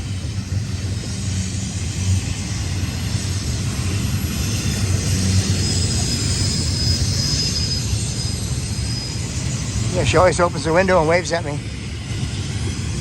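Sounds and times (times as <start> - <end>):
diesel locomotives droning: 0.0 - 13.0
thin high squeal: 5.6 - 11.2.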